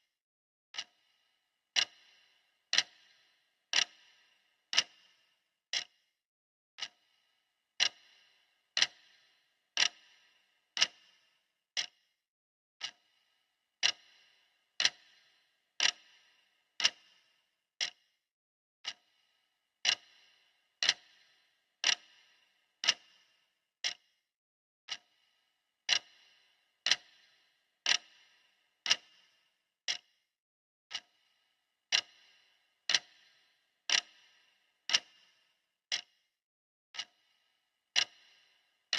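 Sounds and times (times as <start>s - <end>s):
clock ticking: 0.8s - 1.0s, 1.7s - 5.9s, 6.8s - 7.0s, 7.8s - 11.2s, 11.8s - 12.0s, 12.8s - 13.0s, 13.8s - 18.0s, 18.8s - 19.1s, 19.8s - 24.0s, 24.9s - 25.2s, 25.8s - 30.1s, 30.9s - 31.3s, 31.9s - 36.1s, 37.0s - 38.6s.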